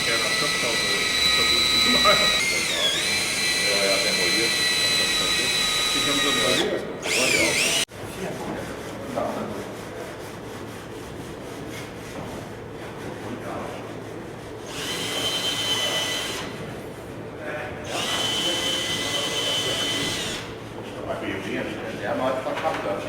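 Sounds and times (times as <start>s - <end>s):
power drill whining: 0.0s - 7.9s, 14.6s - 16.6s, 17.9s - 20.6s.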